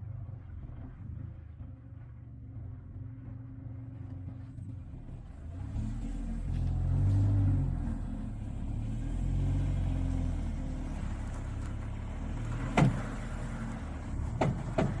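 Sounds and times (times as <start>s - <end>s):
car engine revving: 5.3s - 15.0s.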